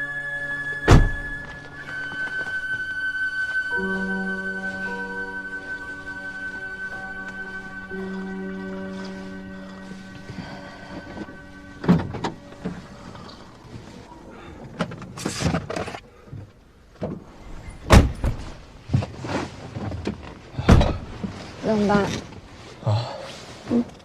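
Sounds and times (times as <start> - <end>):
car door thudding shut: 0.9 - 1.4, 17.9 - 18.4
knocks and rustling in car: 11.0 - 12.9, 14.7 - 21.5.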